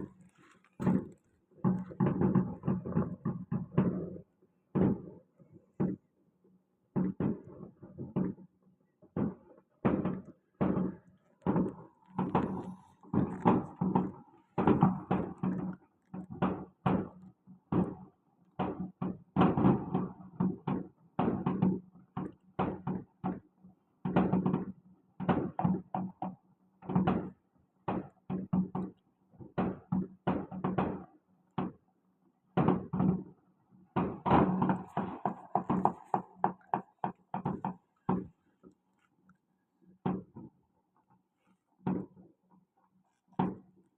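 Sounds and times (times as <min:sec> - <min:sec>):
fireworks bangs: 0:34.1 - 0:37.6.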